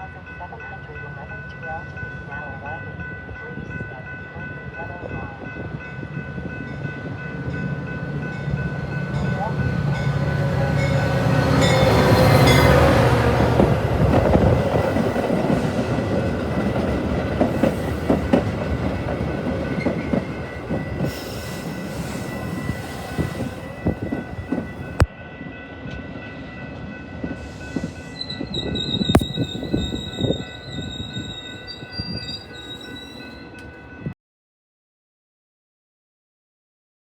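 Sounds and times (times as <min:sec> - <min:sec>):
locomotive rumble: 0:04.9 - 0:25.0.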